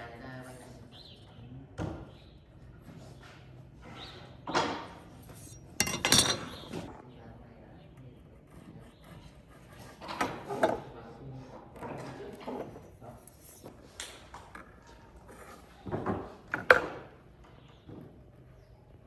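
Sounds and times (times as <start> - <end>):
objects knocking and clunking: 4.5 - 6.9, 15.8 - 17.1.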